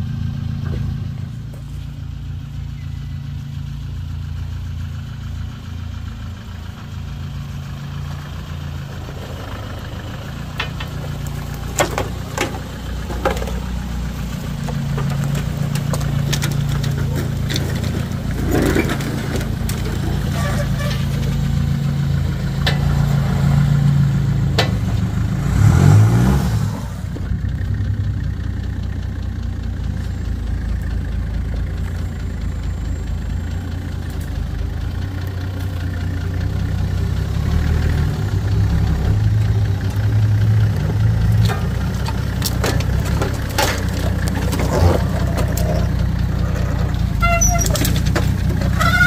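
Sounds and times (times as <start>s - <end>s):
car engine running at low revs: 0.0s - 49.0s
sharp clicks and knocks: 10.5s - 21.5s, 24.5s - 25.1s, 39.1s - 49.0s.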